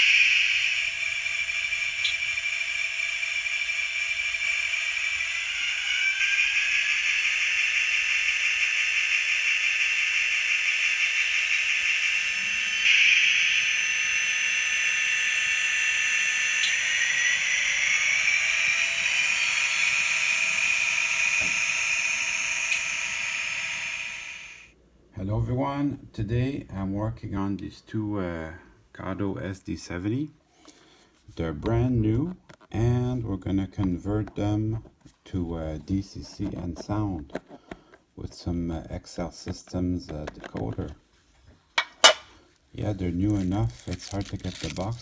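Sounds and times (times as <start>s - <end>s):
model locomotive engine whine: 0.0s - 24.8s, 43.0s - 45.0s.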